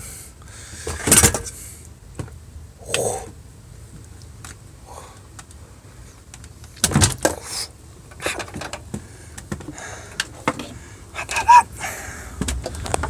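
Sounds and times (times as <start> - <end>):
handling clicks and knocks: 8.1 - 11.5.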